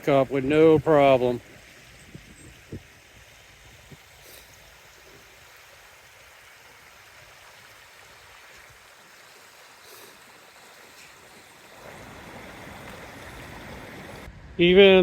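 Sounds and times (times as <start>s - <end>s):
fast-flowing river rushing: 10.7s - 14.3s.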